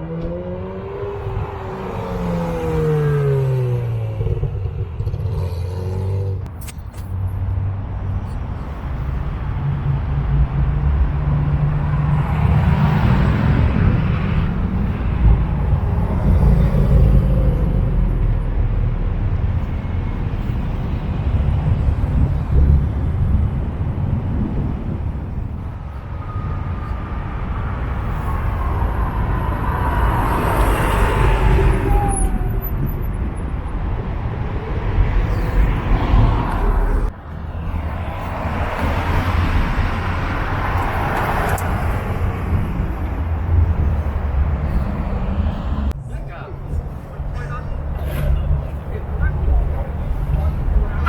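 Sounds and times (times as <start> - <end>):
loud car engines accelerating: 0.0 - 6.5, 27.3 - 46.0.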